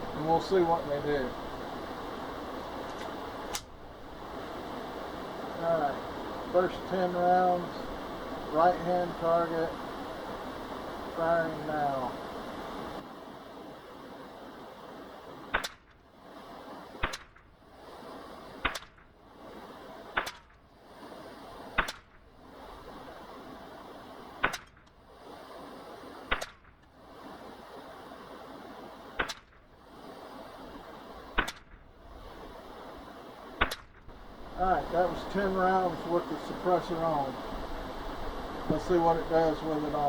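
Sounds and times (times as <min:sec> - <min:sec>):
suppressed rifle shots: 0:15.5 - 0:16.0, 0:17.0 - 0:17.5, 0:18.6 - 0:19.1, 0:20.1 - 0:20.6, 0:21.8 - 0:22.2, 0:24.4 - 0:24.9, 0:29.1 - 0:29.6, 0:31.3 - 0:31.8, 0:33.6 - 0:34.0.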